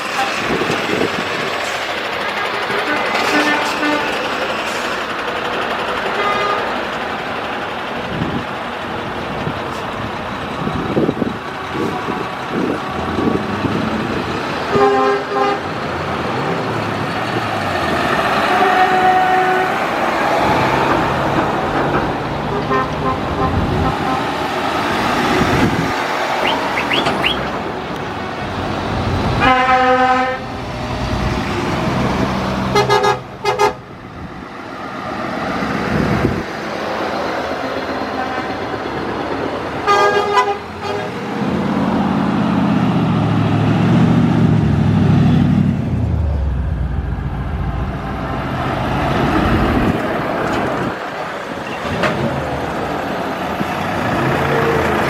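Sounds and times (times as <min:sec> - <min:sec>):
engine and tyre noise: 0:00.0 - 0:55.0
heavy diesel truck passing: 0:00.0 - 0:55.0
lorry horns: 0:02.7 - 0:04.2, 0:14.7 - 0:15.6, 0:18.4 - 0:19.9, 0:22.5 - 0:24.3, 0:29.4 - 0:30.5, 0:32.7 - 0:33.8, 0:39.8 - 0:41.1.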